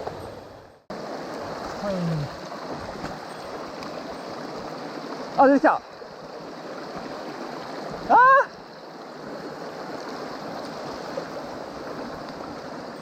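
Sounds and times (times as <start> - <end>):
mountain stream flowing: 0.0 - 13.0
person exclaiming: 1.8 - 2.4, 8.0 - 8.5.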